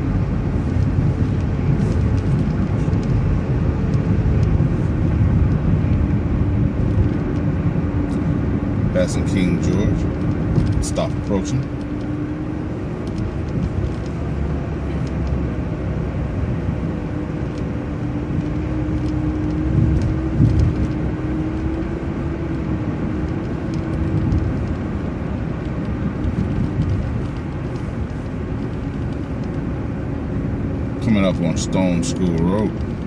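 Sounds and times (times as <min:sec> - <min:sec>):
bus engine and road rumble: 0:00.0 - 0:33.0
droning drivetrain tone: 0:00.0 - 0:33.0.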